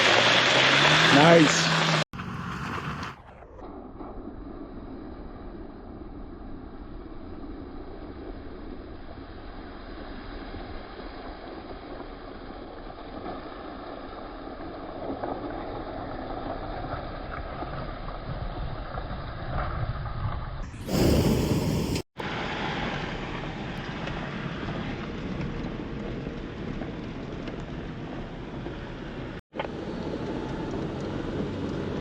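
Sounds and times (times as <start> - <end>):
engine and tyres rumbling: 0.0 - 32.0
loud rush of noise: 20.7 - 22.7.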